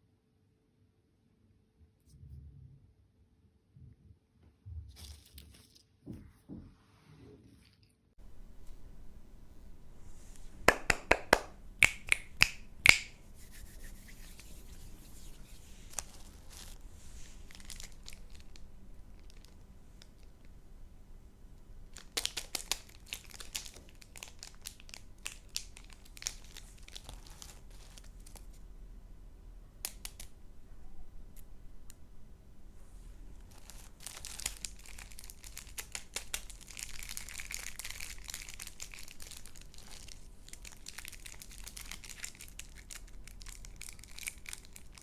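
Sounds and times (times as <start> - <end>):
plastic packaging crinkling: 13.8 - 20.4, 21.9 - 28.6, 33.4 - 45.0.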